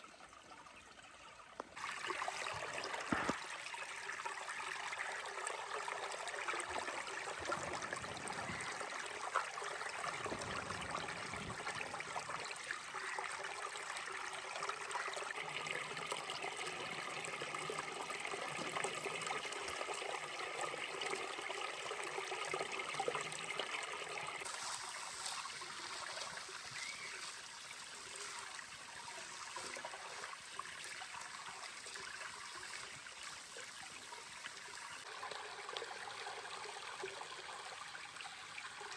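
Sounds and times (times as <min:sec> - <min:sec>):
trickling running water: 0:00.0 - 0:38.9.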